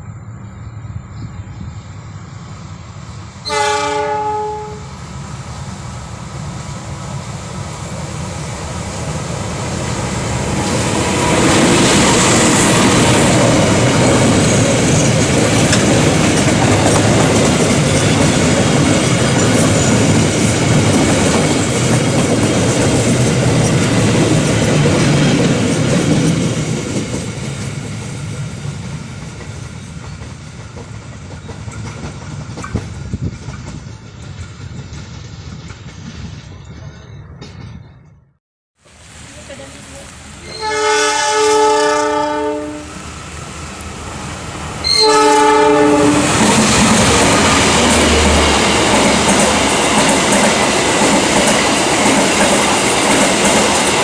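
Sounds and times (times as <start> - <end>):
train horn: 3.4 - 5.0, 40.4 - 43.0, 44.8 - 46.6
train wheels clattering on rails: 7.6 - 38.2, 45.6 - 54.0.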